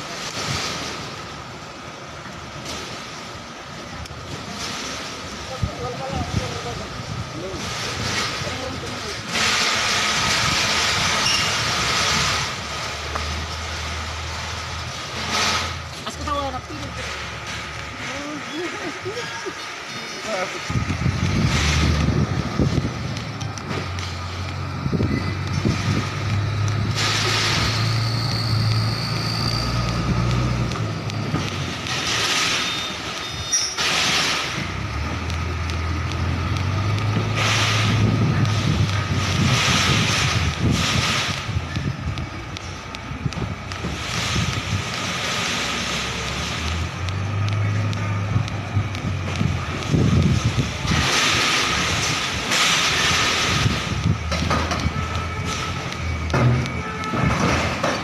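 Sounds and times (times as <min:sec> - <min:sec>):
truck engine rumbling: 0:00.0 - 0:58.0
compressed air hissing: 0:20.7 - 0:30.9, 0:31.5 - 0:42.0, 0:42.6 - 0:55.9.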